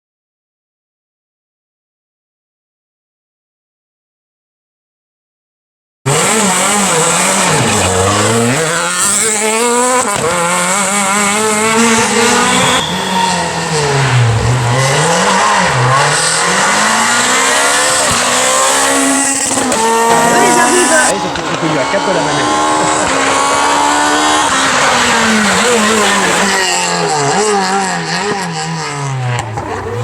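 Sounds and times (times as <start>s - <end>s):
rally car engine revving: 6.1s - 30.0s.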